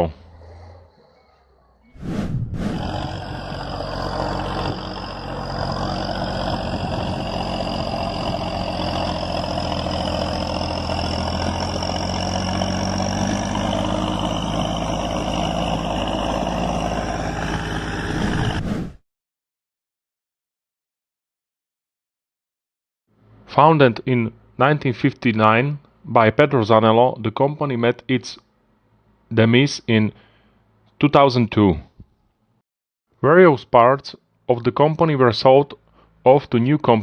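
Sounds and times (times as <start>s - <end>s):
tractor engine droning: 2.7s - 18.6s.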